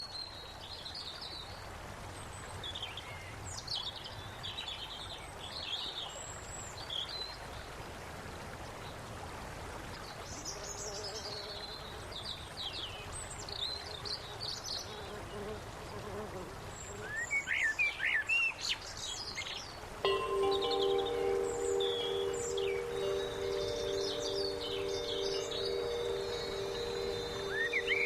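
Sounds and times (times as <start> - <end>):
steady outdoor hiss: 0.0 - 28.0
birds chirping and trilling: 20.1 - 28.0.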